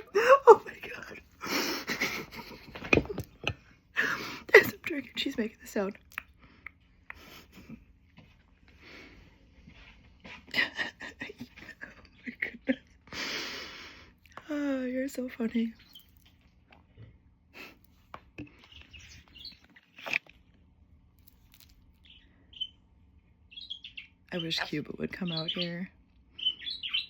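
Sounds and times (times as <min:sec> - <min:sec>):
parrot chirping: 0:18.6 - 0:20.3, 0:22.0 - 0:22.8, 0:23.5 - 0:27.0.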